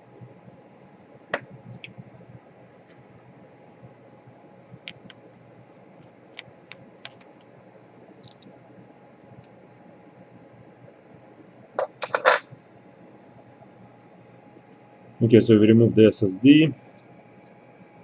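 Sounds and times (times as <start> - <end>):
small tools clicking and tapping: 8.2 - 8.4.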